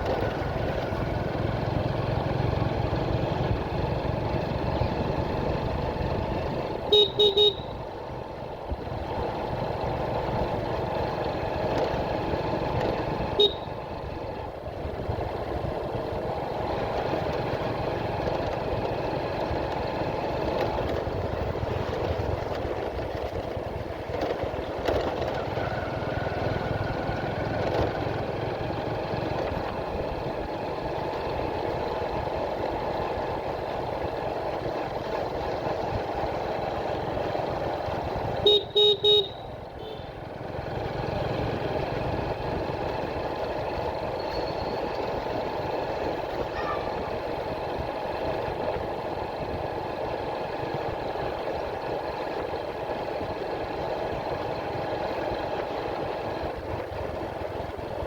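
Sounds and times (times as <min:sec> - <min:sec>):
motorcycle engine running: 0:00.0 - 0:58.0
horn beeps: 0:06.9 - 0:07.8, 0:13.4 - 0:13.8, 0:38.4 - 0:40.0.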